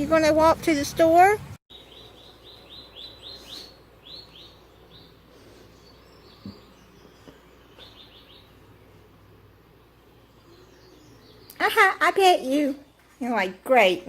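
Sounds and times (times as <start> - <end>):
small bird chirping: 1.7 - 8.7, 10.2 - 12.2.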